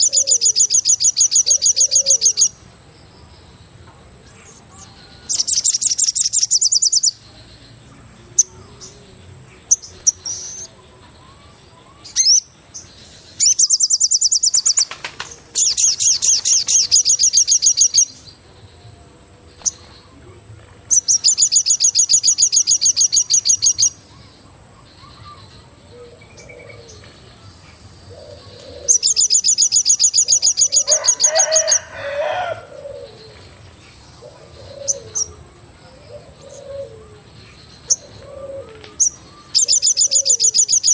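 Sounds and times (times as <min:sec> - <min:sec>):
birds calling with high trills: 0:00.0 - 0:40.9.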